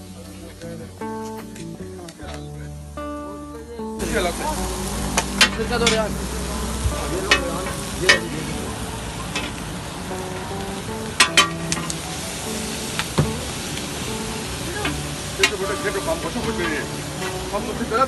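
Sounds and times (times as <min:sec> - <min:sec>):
meat sizzling on a griddle: 0:04.0 - 0:18.0.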